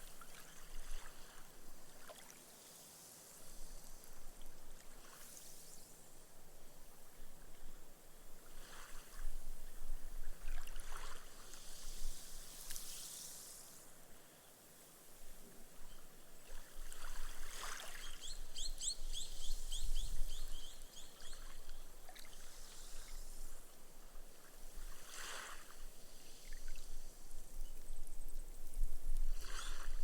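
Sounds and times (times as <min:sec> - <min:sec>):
gentle waves washing on sand: 0:00.0 - 0:06.8, 0:08.4 - 0:15.0, 0:16.4 - 0:18.4, 0:20.8 - 0:28.2, 0:29.2 - 0:30.0.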